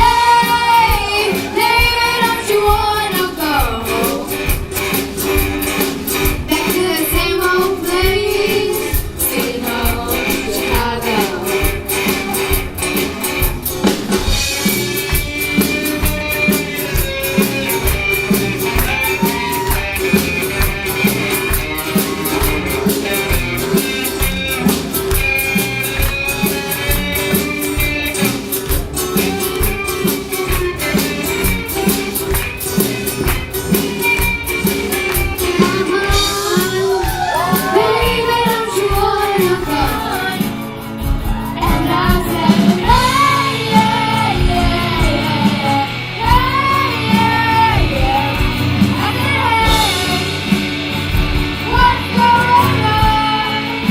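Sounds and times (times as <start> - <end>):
person singing: 0.0 - 4.7, 6.5 - 12.6, 33.5 - 50.5
drum kit: 0.0 - 53.9
live rock band: 0.0 - 53.9.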